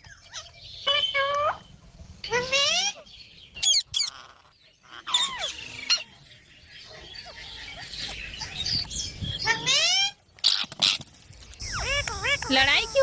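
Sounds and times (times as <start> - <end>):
parrots squawking: 3.6 - 6.1, 11.6 - 13.0
parrot scratchy chatter: 11.6 - 13.0.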